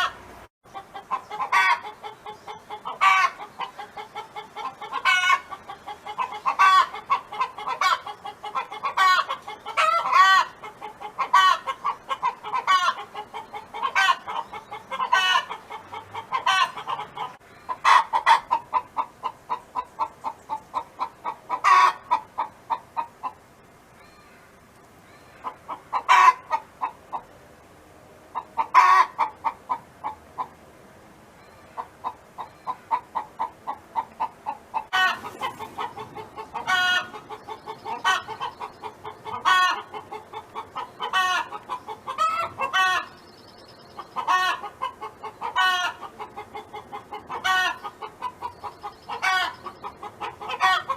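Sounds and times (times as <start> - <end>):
hen clucking: 0.0 - 23.4, 25.0 - 27.3, 28.3 - 30.6, 31.4 - 50.9
hen squawking: 31.4 - 43.2.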